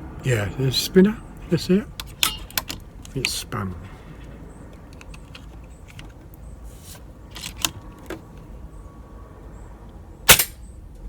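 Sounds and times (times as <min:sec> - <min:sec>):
air rifle metallic clicks: 0:02.0 - 0:03.4, 0:04.8 - 0:06.2, 0:10.3 - 0:10.6.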